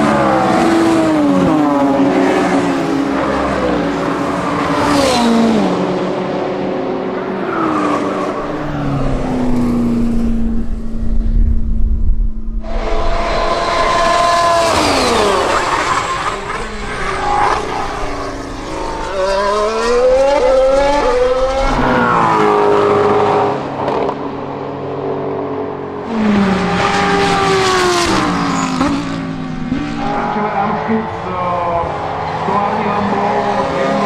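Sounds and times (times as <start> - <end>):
race car engines passing by: 0.0 - 34.0.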